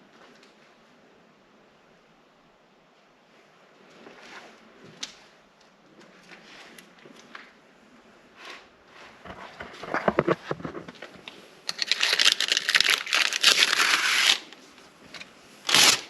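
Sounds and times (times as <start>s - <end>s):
crackling and crunching rustle: 8.4s - 16.0s.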